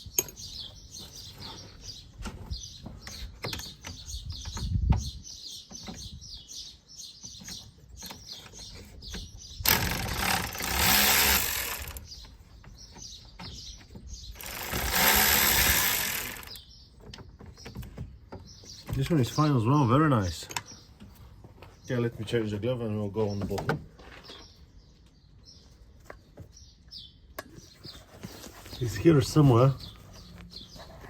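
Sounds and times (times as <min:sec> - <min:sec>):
birds chirping: 0:00.0 - 0:31.0
cordless power tool running: 0:09.6 - 0:12.0, 0:14.4 - 0:16.6.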